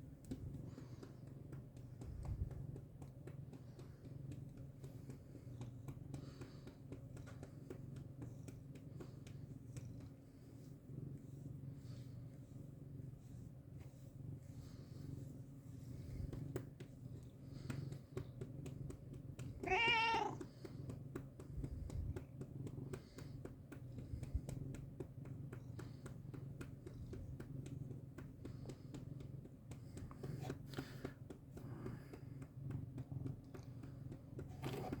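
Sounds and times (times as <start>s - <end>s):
cat purring: 0.0s - 35.0s
cat meow: 19.6s - 20.4s.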